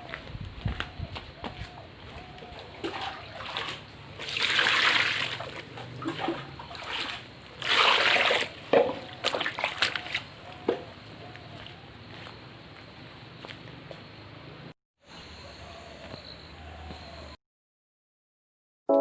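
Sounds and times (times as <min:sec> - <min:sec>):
water splashing and sloshing: 0:02.1 - 0:11.8.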